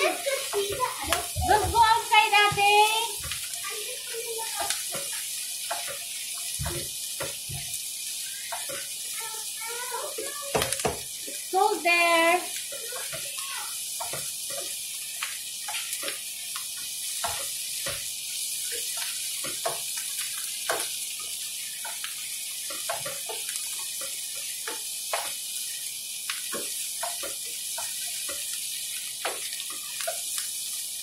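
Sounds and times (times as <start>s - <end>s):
meat and onion sizzling in oil: 0.0s - 31.0s
spoon scraping and tapping pan: 4.6s - 7.6s, 14.0s - 25.4s, 26.4s - 30.4s.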